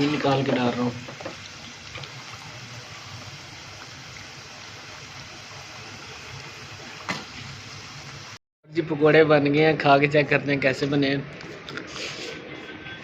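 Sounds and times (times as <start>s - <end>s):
hot oil sizzling in a pan: 0.0s - 8.4s.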